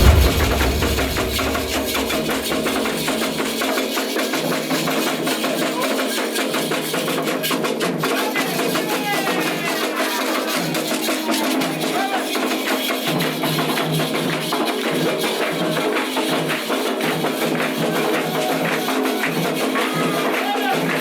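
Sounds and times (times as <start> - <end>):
hand drums: 0.0 - 5.6.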